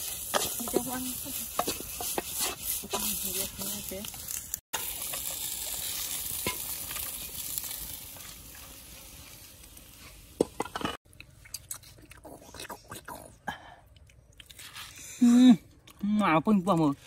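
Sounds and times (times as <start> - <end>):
food frying in oil: 0.0 - 11.5.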